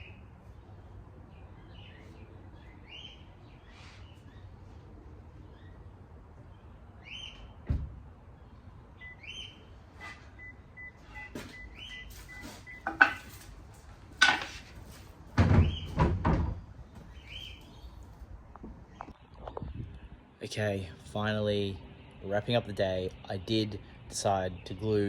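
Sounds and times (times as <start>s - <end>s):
knocks and clunks: 7.6s - 8.0s, 14.2s - 17.1s
bird chirping rising notes: 8.3s - 9.7s.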